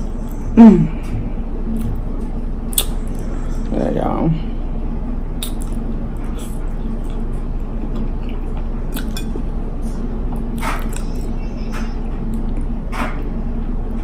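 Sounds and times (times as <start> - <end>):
low hum: 0.0 - 14.0
chewing food: 5.4 - 9.5.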